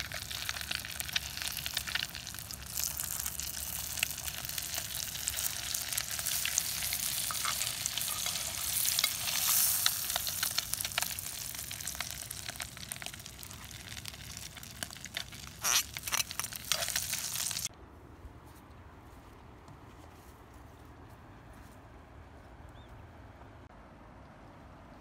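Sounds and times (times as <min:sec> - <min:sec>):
food sizzling in hot oil: 0:00.0 - 0:17.7
metal utensils clicking and scraping: 0:06.3 - 0:11.1, 0:15.0 - 0:17.7.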